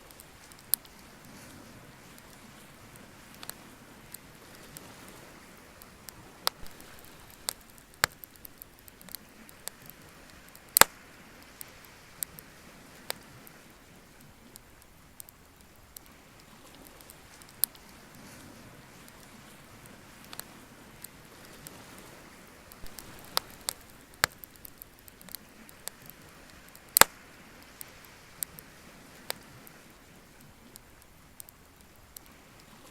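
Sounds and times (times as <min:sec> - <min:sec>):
bonfire crackling: 0:00.0 - 0:32.9
faint steady hiss: 0:00.0 - 0:32.9.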